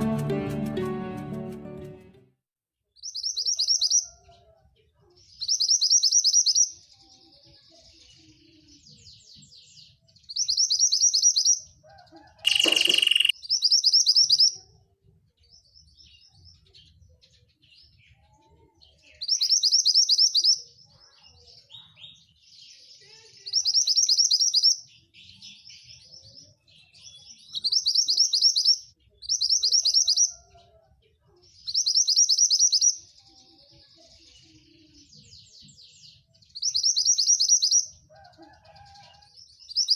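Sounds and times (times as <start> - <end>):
harsh bird note: 12.5 - 13.3
bird buzzy trills: 12.5 - 13.4
bird twittering: 12.5 - 14.5.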